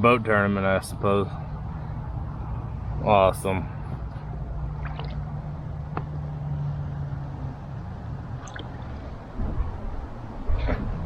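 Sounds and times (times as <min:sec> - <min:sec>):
water drips and splashes: 0:04.7 - 0:05.3, 0:08.4 - 0:09.7.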